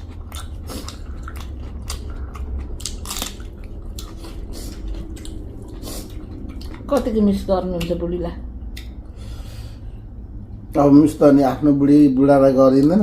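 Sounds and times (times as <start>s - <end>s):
chewing and mouth smacks: 0.0s - 7.1s, 8.7s - 9.1s.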